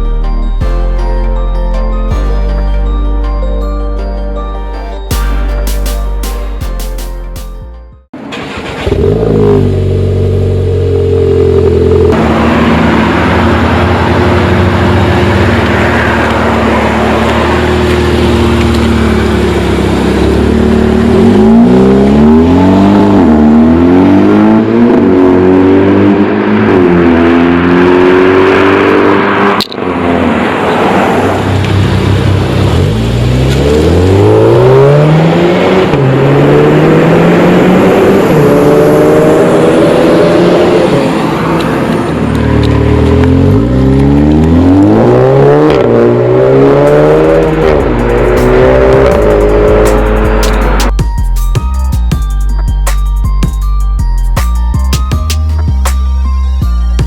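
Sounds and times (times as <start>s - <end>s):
car engine accelerating through gears: 8.2s - 50.9s.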